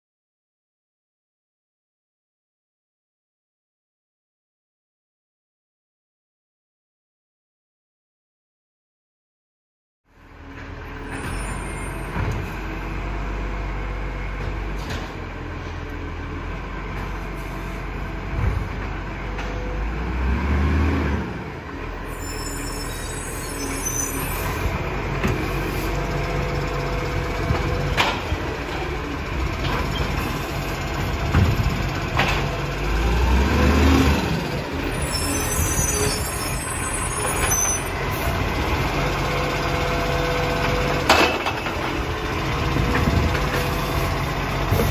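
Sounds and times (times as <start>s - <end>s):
truck engine revving: 19.8s - 21.9s, 25.9s - 35.8s.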